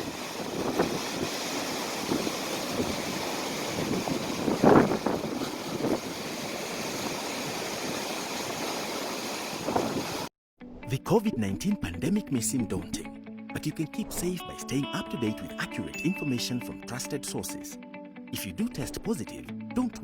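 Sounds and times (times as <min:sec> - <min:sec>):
steady rushing noise: 0:00.0 - 0:10.3.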